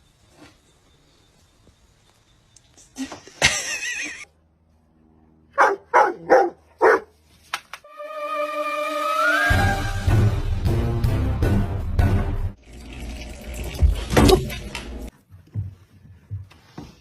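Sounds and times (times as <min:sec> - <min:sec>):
dog barking: 0:05.6 - 0:07.1.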